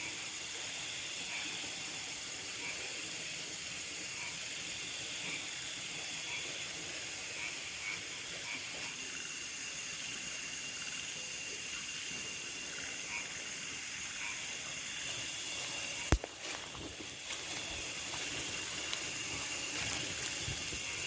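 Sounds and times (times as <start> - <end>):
insects buzzing: 0.0 - 21.0
short insect chirp: 7.4 - 21.0.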